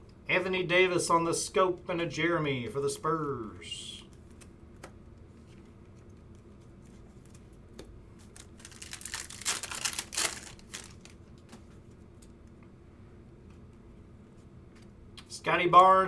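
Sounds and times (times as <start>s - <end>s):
card packaging crinkling and rustling: 5.5s - 11.8s.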